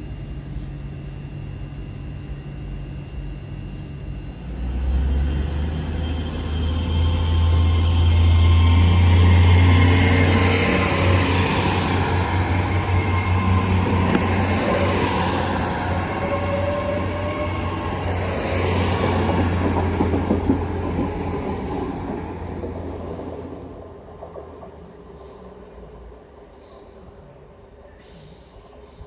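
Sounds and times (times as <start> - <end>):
diesel train engine hum: 0.0 - 29.0
wheel-on-rail noise: 4.8 - 27.2.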